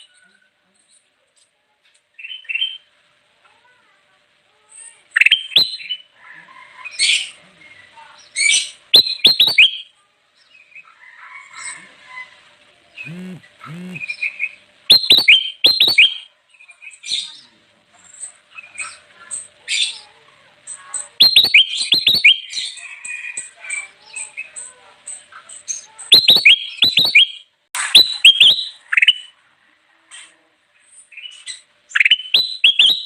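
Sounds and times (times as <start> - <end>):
soft high chirps: 9.0 - 9.9, 13.0 - 14.1, 14.9 - 16.3, 21.2 - 22.6, 26.0 - 28.5, 32.1 - 33.0
bird song with sweeping notes: 13.0 - 16.2, 21.2 - 22.8.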